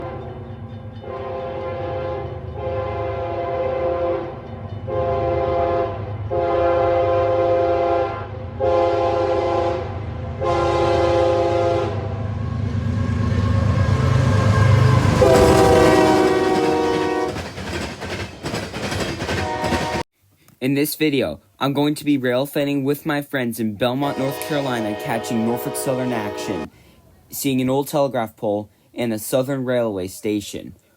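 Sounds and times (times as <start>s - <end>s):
locomotive air horn blasts: 0.0s - 0.4s, 1.0s - 12.2s, 13.0s - 17.5s, 19.3s - 20.0s, 24.0s - 26.7s
locomotive engine rumble: 0.0s - 20.0s, 24.0s - 27.2s
train wheels clicking over rail joints: 14.7s - 20.0s.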